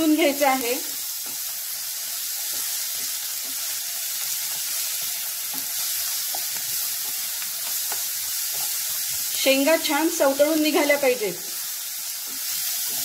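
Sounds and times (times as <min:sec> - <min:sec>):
food sizzling in oil: 0:00.0 - 0:13.0
spatula scraping a pan: 0:12.2 - 0:13.0.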